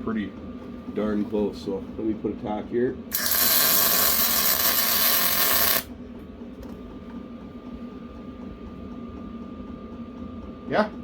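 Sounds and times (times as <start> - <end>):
arc welder hissing: 3.1 - 5.9.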